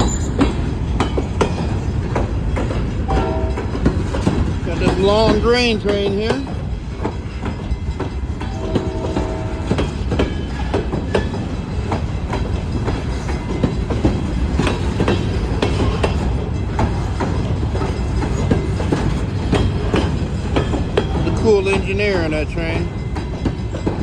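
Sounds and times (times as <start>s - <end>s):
freight train rumble: 0.0s - 24.0s
wheels and couplers clanking: 0.0s - 24.0s.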